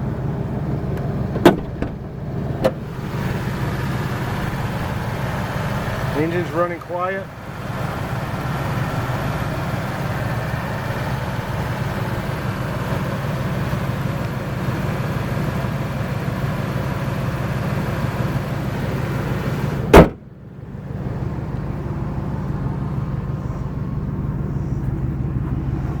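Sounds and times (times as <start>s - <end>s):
truck engine idling: 0.0s - 26.0s
loud thump: 1.4s - 2.8s, 19.9s - 20.3s.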